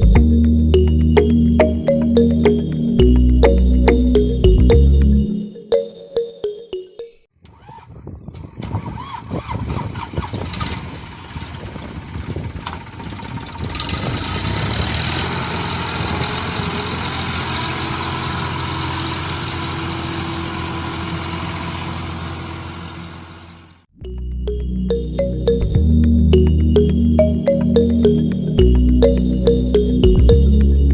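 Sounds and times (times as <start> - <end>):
tractor engine starting and running: 7.4 - 23.9.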